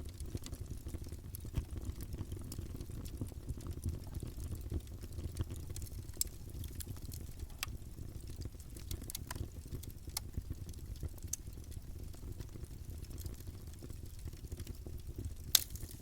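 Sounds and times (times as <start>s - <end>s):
burning wood crackling and popping: 0.0s - 16.0s
campfire flames rumbling: 0.0s - 16.0s.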